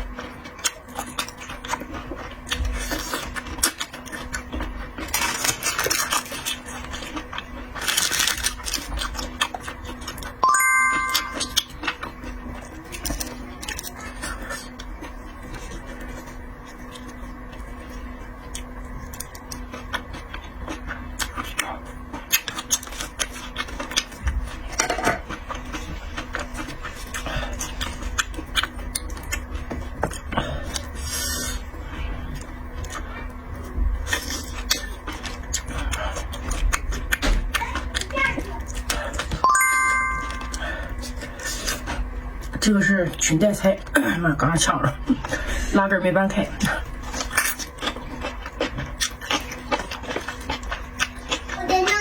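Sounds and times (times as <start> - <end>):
chewing and sucking seafood: 0.0 - 10.4, 11.1 - 42.6, 46.6 - 52.0
chewing or slurping: 46.6 - 52.0.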